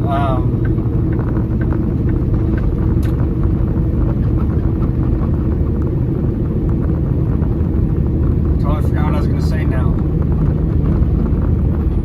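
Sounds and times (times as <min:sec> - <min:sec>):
road noise: 0:00.0 - 0:12.0
truck diesel engine droning: 0:00.0 - 0:12.0.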